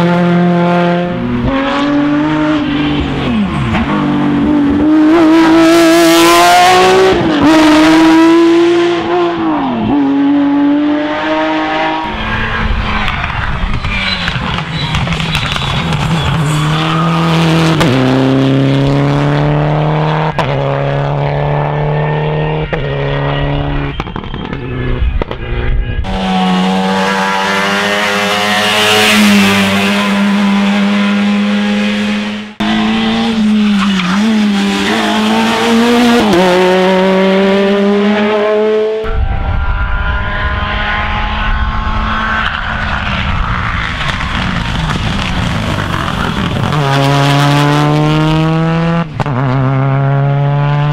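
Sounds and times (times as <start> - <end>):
rally car engines revving: 0.0 - 50.9
tire squeal: 12.0 - 17.5, 22.0 - 30.1, 32.8 - 35.8, 39.1 - 47.1.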